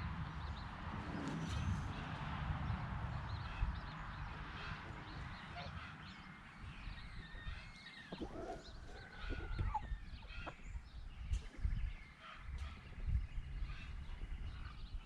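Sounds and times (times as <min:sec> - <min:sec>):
chickens clucking and chirping: 0:03.6 - 0:15.0.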